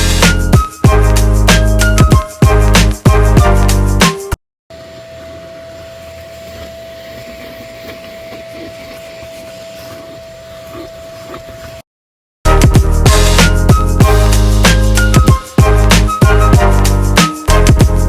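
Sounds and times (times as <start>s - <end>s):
vacuum motor whining: 4.7s - 11.8s.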